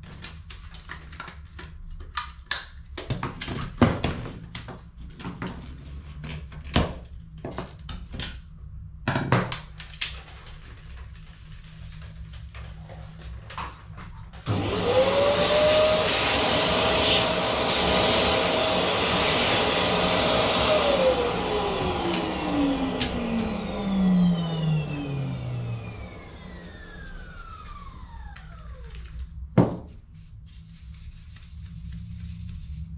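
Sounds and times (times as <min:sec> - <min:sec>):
vacuum cleaner motor whine: 0:14.4 - 0:29.2.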